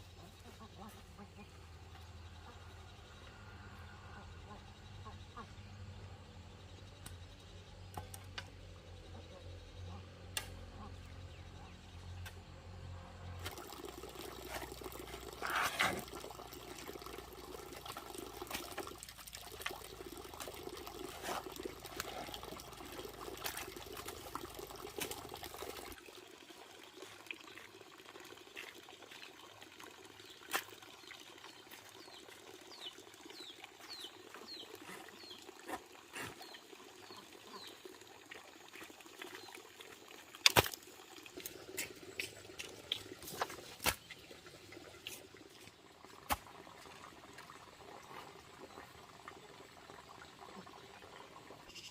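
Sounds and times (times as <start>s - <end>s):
water running and trickling: 13.2s - 51.9s.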